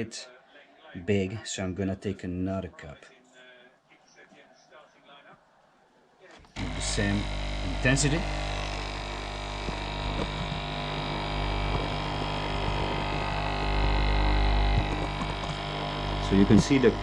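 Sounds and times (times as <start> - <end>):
coffee machine pump humming: 6.5 - 17.0.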